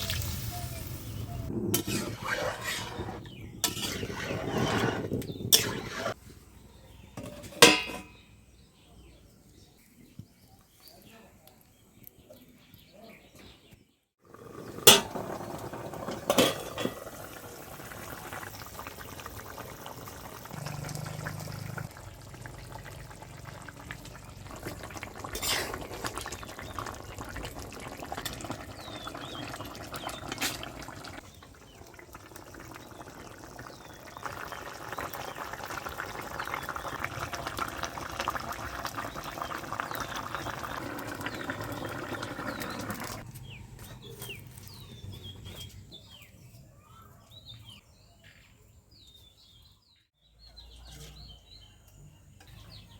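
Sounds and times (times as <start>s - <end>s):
curry bubbling in a pot: 1.4s - 6.2s, 14.2s - 43.2s
utensil clinking against pot: 7.2s - 8.2s.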